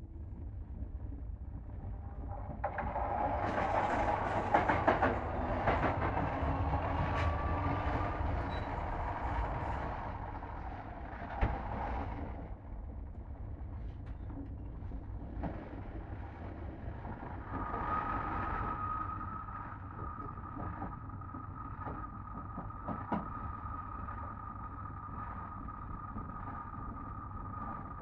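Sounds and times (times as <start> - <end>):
train carriage rumble: 1.9 - 23.6
high-pitched whine: 16.7 - 28.0.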